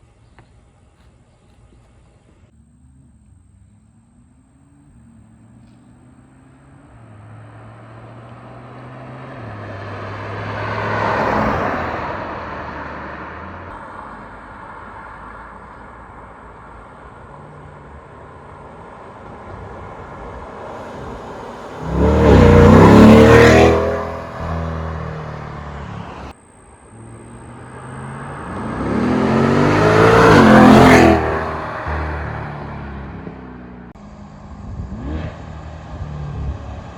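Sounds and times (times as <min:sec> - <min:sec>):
car exhaust accelerating past: 0:02.6 - 0:15.8, 0:17.3 - 0:36.9.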